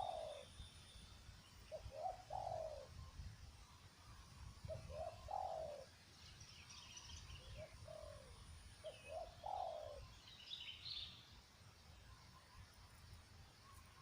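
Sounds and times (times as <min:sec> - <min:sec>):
dove cooing: 0:00.0 - 0:00.6, 0:01.7 - 0:03.0, 0:04.6 - 0:05.9, 0:07.5 - 0:10.1
small birds chirping: 0:00.0 - 0:14.0.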